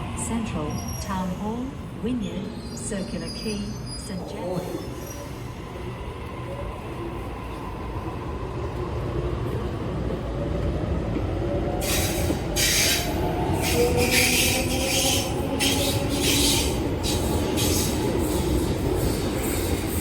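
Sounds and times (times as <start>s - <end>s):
electric train rumble: 4.8s - 20.0s
wheels screeching on rails: 11.8s - 20.0s.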